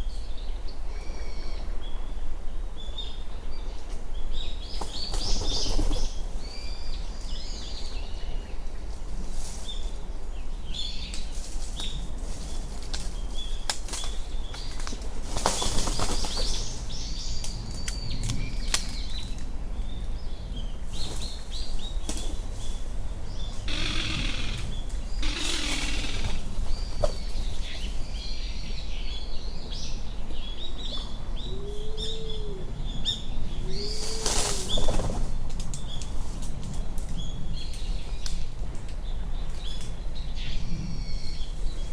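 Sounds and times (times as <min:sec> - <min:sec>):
small birds chirping: 0:10.7 - 0:32.4
pigeon harsh rattling call: 0:23.6 - 0:26.6.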